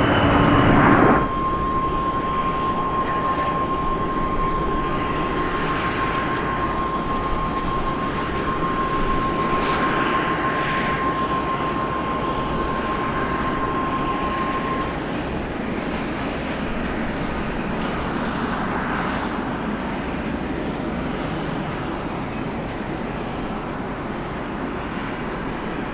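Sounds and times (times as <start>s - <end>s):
jet engines rumbling: 0.0s - 25.9s
thin engine whine: 0.0s - 25.9s.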